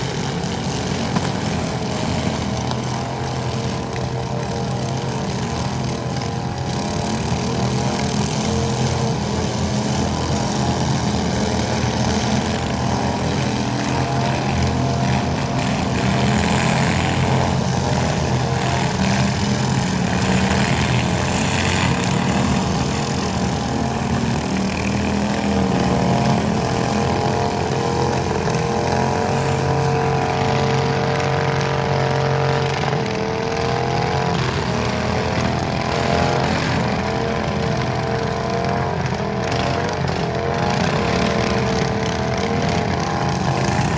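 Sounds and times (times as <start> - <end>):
small tractor engine running: 0.0 - 43.9.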